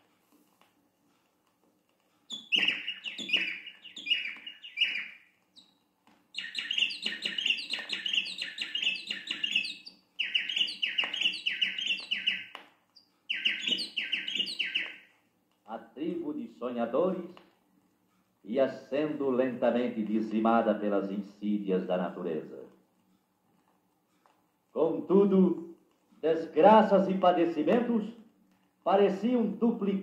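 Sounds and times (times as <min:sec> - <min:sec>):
bird singing downward-slurred notes: 0:02.3 - 0:05.7, 0:06.4 - 0:12.5, 0:13.3 - 0:15.1.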